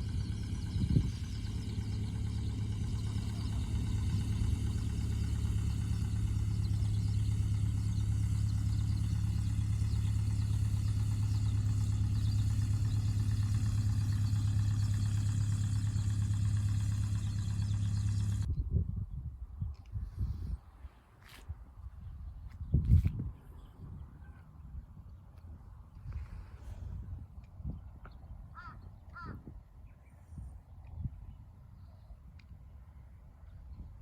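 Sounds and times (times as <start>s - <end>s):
engine idling: 0.0s - 18.5s.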